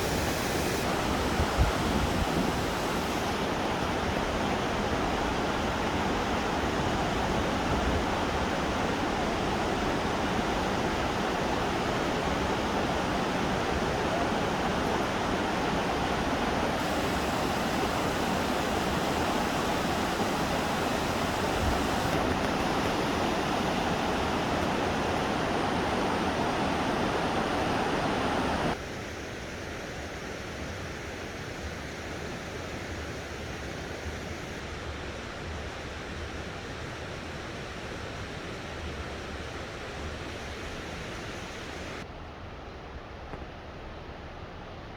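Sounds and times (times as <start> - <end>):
stream water rushing: 0.0 - 28.8.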